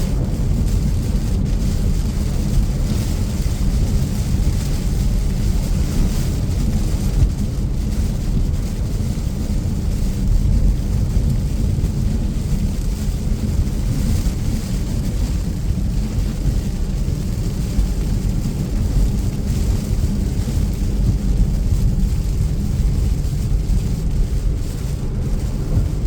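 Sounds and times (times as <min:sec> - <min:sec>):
rain: 0:00.0 - 0:26.0
road and engine rumble inside car: 0:00.0 - 0:26.0
tyres hissing on wet road: 0:00.0 - 0:26.0.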